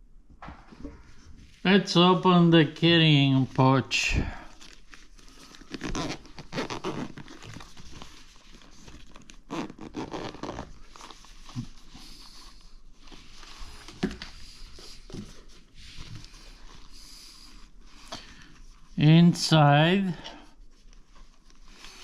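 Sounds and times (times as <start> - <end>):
pouch rustling: 4.5 - 11.9.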